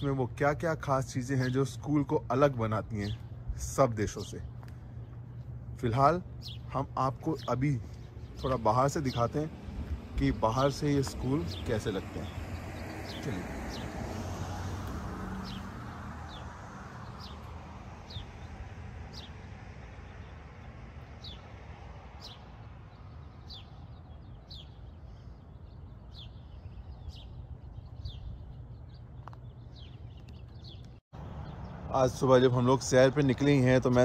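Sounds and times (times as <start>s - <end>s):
low outdoor rumble: 0.0s - 13.5s
birds chirping: 0.0s - 34.0s.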